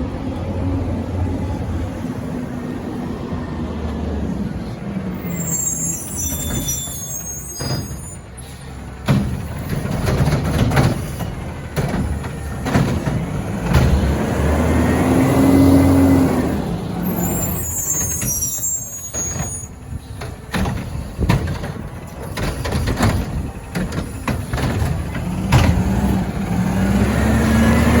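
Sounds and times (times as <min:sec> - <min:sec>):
air brakes hissing: 0:05.1 - 0:10.1, 0:16.9 - 0:24.5
diesel truck engine running: 0:19.7 - 0:28.0
bin clanking and knocking: 0:20.5 - 0:26.0.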